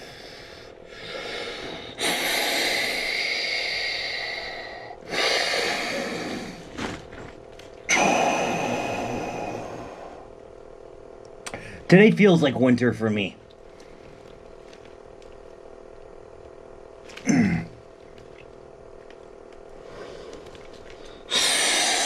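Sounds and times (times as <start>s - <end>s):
man breathing hard: 0.0s - 7.0s, 7.9s - 10.3s, 19.8s - 22.0s.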